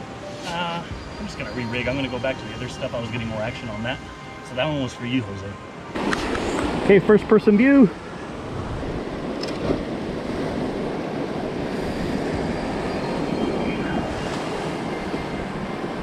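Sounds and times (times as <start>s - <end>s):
ocean surf washing: 0.0s - 16.0s
wind on microphone: 7.9s - 16.0s.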